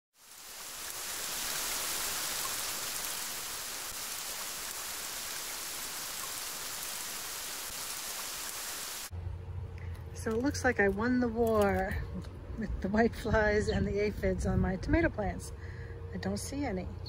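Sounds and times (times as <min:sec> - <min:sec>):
heavy rain: 0:00.1 - 0:09.1.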